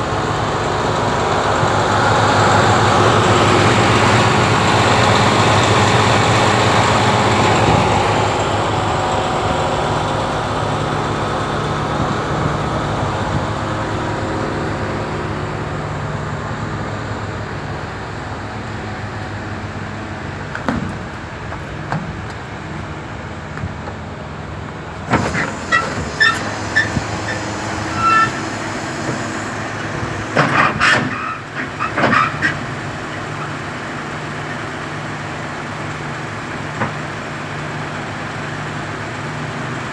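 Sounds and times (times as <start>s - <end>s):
diesel truck engine running: 0.0s - 39.9s
sharp metallic clanks and knocks: 20.5s - 22.6s.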